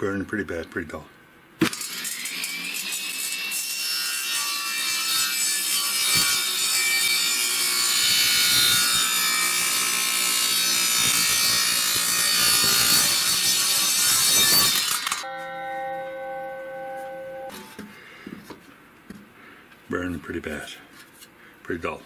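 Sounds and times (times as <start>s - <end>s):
table saw cutting wood: 1.6s - 15.8s
high ringing blade tone: 14.4s - 17.8s.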